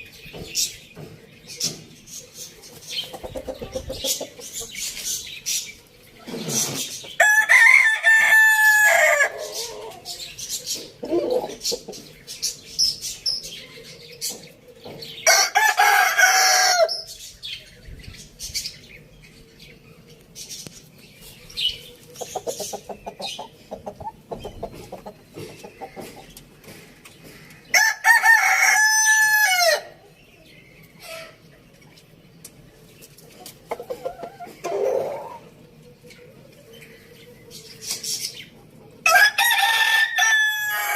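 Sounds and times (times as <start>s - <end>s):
chickens clucking: 0.0s - 19.5s, 20.1s - 29.2s, 29.8s - 40.9s
rooster crowing: 7.2s - 9.8s, 15.3s - 17.0s, 27.7s - 29.9s, 39.0s - 40.9s.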